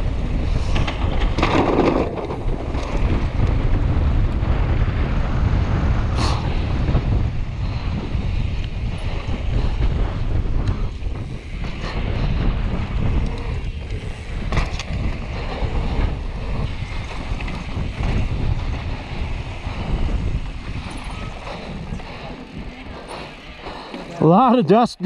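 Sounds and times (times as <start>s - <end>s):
tyres rolling on dirt: 0.0s - 25.0s
wind buffeting microphone: 0.0s - 25.0s
bike knocks: 14.4s - 15.3s.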